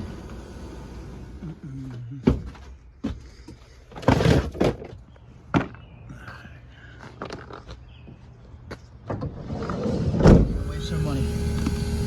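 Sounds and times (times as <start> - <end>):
low equipment hum: 10.4 - 12.0.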